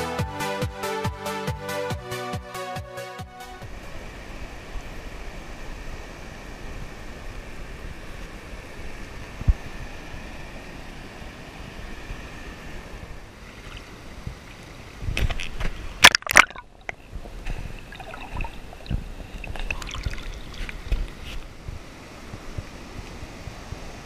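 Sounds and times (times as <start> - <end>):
water splashes: 13.2 - 21.6
water sloshing and lapping: 13.3 - 21.5.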